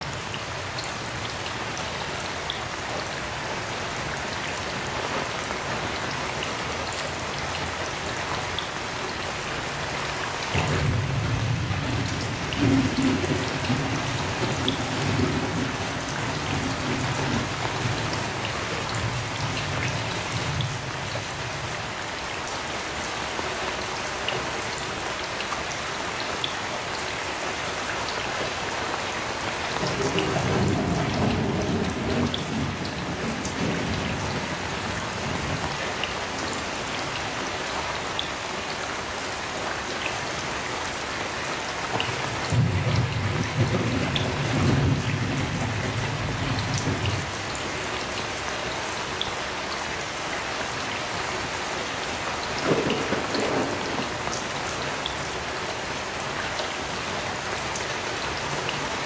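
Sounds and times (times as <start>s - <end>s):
heavy rain falling: 0.0s - 59.0s
thunder rumbling: 10.4s - 21.9s, 29.7s - 37.4s, 42.4s - 47.9s, 52.4s - 55.5s.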